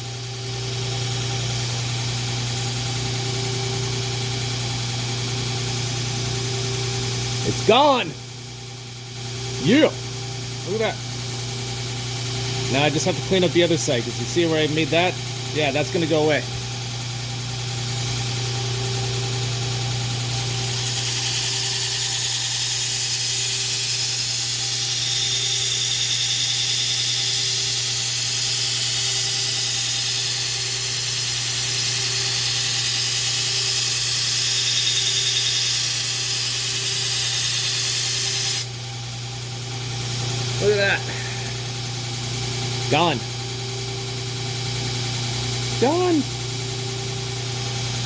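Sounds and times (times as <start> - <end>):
grinder grinding metal blade: 9.6 - 10.0, 12.6 - 16.5, 20.2 - 38.7, 42.9 - 43.2, 45.6 - 46.8.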